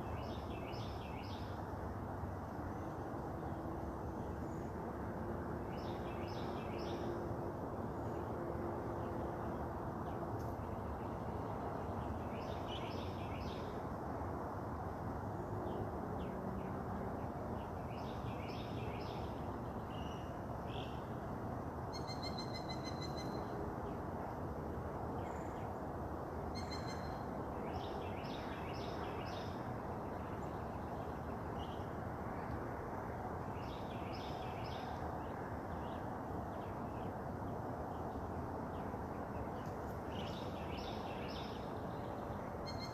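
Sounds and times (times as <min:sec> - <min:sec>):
wild birds singing: 0:00.0 - 0:01.6, 0:09.5 - 0:13.8, 0:26.5 - 0:32.6, 0:33.4 - 0:42.9
low background noise: 0:00.0 - 0:42.9.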